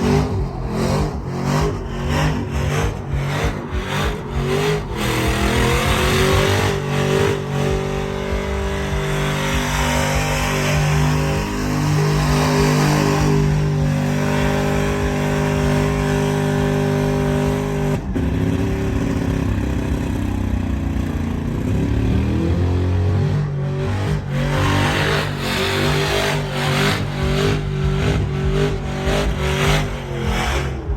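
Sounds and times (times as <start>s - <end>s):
truck engines revving: 0.0s - 30.9s.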